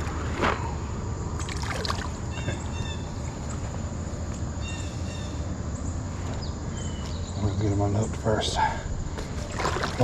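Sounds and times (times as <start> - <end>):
water splashing: 1.4 - 2.4, 9.4 - 10.0.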